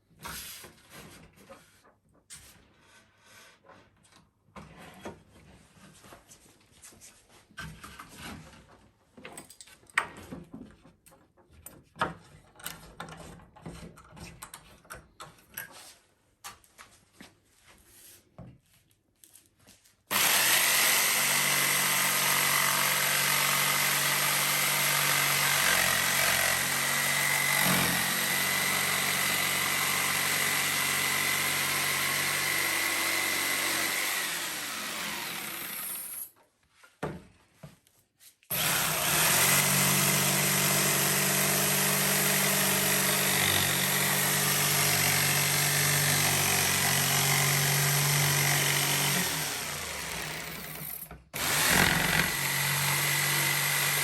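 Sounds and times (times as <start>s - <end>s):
wooden boards and tools handled: 7.4s - 17.0s
power tool whining on wood: 20.1s - 36.3s, 38.5s - 54.0s.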